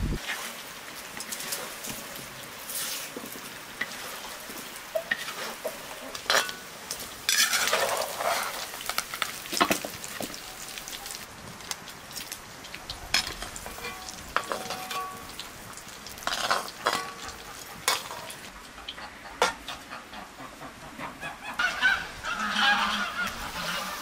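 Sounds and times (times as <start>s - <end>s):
meat sizzling in hot fat: 0.2s - 18.5s
metal skimmer scraping a pot: 7.3s - 8.7s, 21.6s - 24.0s.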